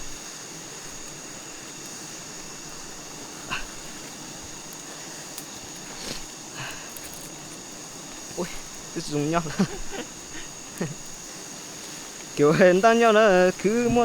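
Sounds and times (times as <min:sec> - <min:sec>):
high-pitched whine: 0:08.2 - 0:14.0.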